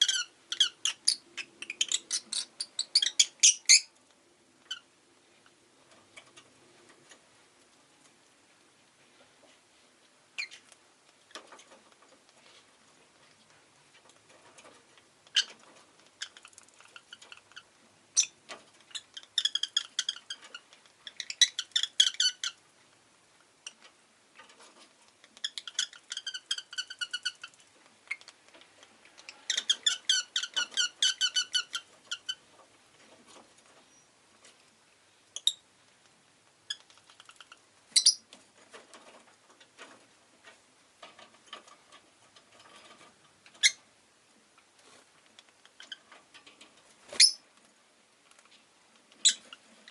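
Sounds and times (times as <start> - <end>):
lovebird chirping: 0.0 - 3.9, 29.2 - 32.4, 35.4 - 35.6, 36.7 - 38.3, 43.6 - 43.8, 47.1 - 47.4.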